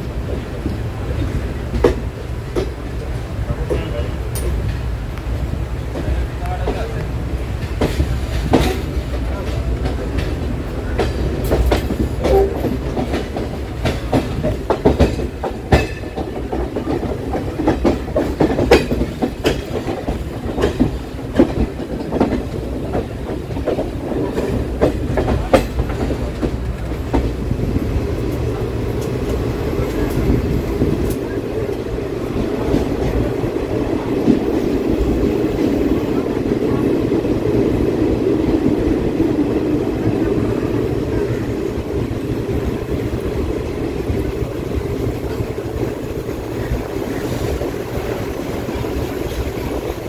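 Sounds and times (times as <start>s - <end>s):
train coach rumbling: 0.0s - 50.0s
wheels clattering over rail joints: 5.9s - 27.4s.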